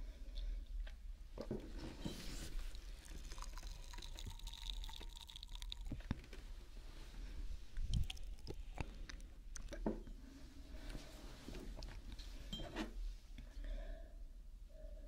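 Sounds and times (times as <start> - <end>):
wet mouth sounds: 3.0 - 6.1, 7.7 - 9.8
small mouth clicks: 7.8 - 9.8.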